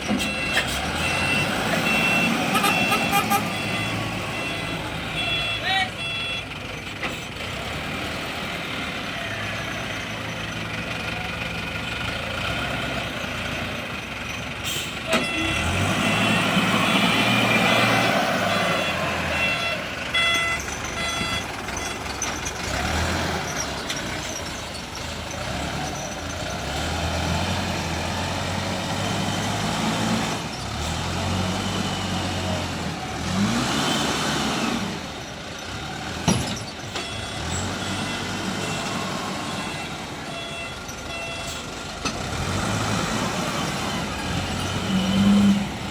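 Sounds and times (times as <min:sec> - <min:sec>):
reversing beeps: 0:00.0 - 0:06.5, 0:15.1 - 0:22.6, 0:36.4 - 0:41.7
diesel engine revving: 0:00.0 - 0:45.9.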